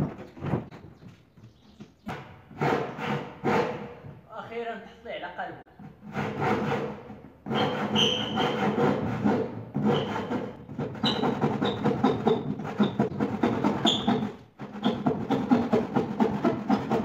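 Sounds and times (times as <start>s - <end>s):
handsaw cutting wood: 2.5s - 4.0s, 5.9s - 17.0s.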